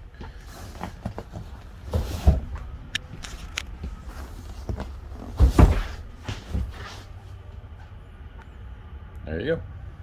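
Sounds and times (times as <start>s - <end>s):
furniture thumping: 0.6s - 7.1s.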